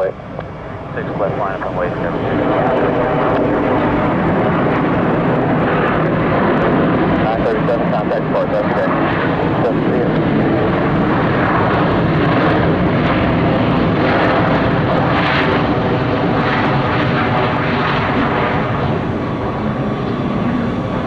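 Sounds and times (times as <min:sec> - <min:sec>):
jet engine noise: 0:00.0 - 0:21.0.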